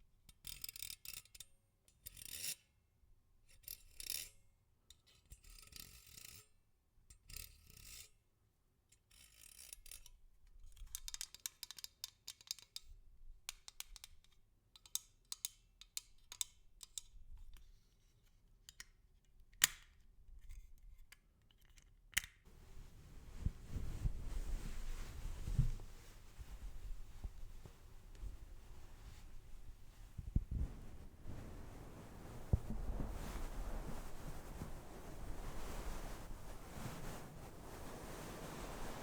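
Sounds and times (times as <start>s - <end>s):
small crisp clicks and crackles: 10.6s - 39.0s
scratchy rubbing strokes: 22.5s - 39.0s.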